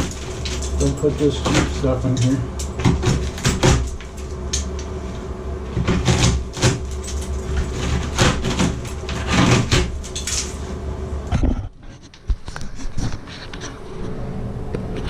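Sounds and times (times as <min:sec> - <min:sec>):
tools knocking and scraping: 0:00.0 - 0:04.9, 0:05.7 - 0:10.7
low hum: 0:00.0 - 0:15.0.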